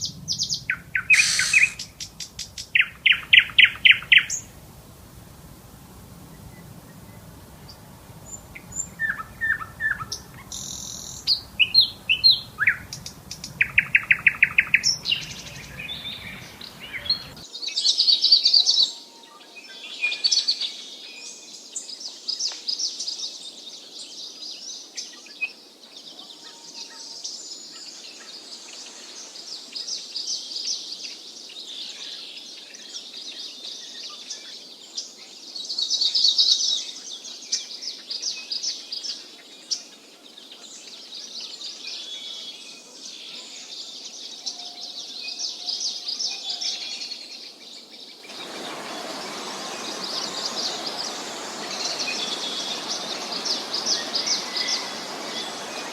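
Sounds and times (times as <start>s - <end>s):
bird calls with trills: 0.0s - 4.6s, 6.2s - 17.4s, 48.3s - 55.9s
chorus of birds chirping: 0.0s - 17.5s, 36.9s - 55.9s.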